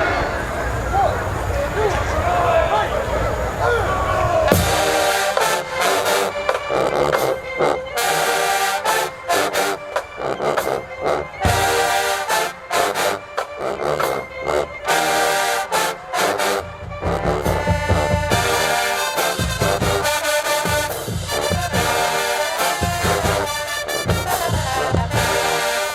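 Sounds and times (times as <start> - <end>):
marching band brass phrases: 0.0 - 25.9
drums: 4.3 - 14.5, 16.3 - 25.9.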